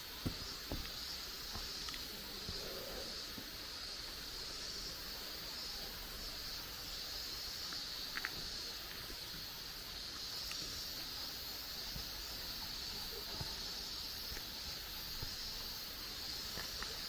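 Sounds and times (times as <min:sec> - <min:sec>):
steady high hiss: 0:00.0 - 0:17.0
faint ticks: 0:00.2 - 0:03.5, 0:07.6 - 0:17.0.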